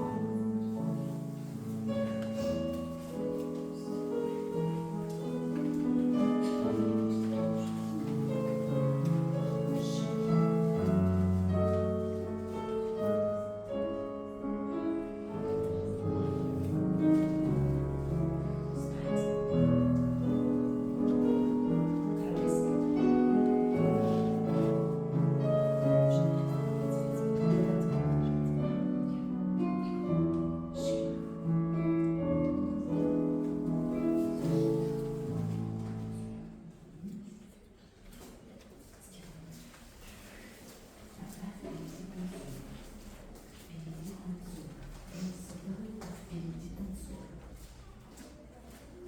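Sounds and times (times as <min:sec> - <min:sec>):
classical piano music: 0:00.0 - 0:37.7.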